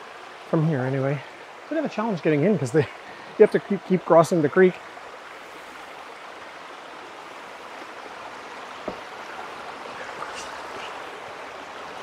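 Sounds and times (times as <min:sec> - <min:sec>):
creek flowing over rocks: 0:00.0 - 0:12.0
short knock: 0:08.8 - 0:09.1.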